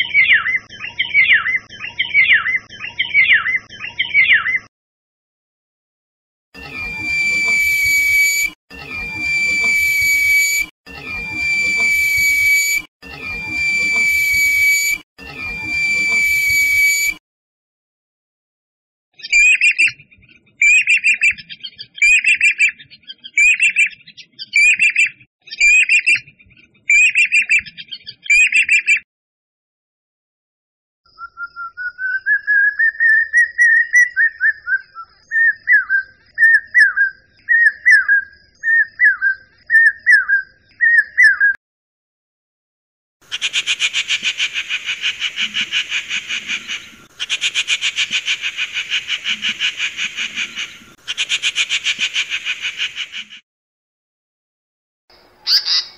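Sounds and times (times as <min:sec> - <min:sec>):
repeated bird call: 0:00.0 - 0:04.7, 0:06.6 - 0:17.2, 0:19.2 - 0:29.0, 0:43.2 - 0:53.4, 0:55.1 - 0:55.9
bird's rising whistle: 0:06.6 - 0:17.2, 0:55.4 - 0:55.9.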